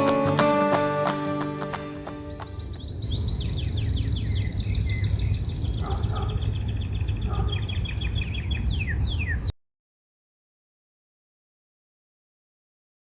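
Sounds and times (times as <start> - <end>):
songbirds chirping and trilling: 1.8 - 9.5.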